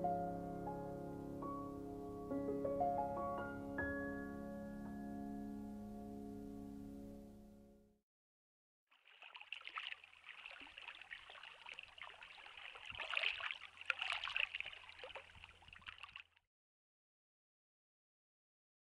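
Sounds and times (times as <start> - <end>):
water trickling and splashing: 8.9 - 16.4.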